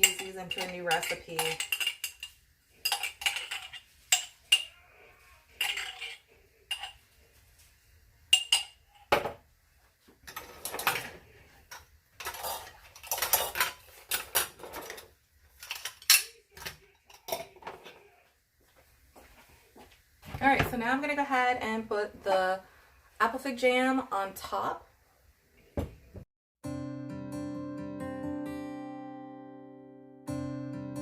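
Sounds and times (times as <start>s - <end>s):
metal spoon scraping glass jar: 5.6s - 7.0s.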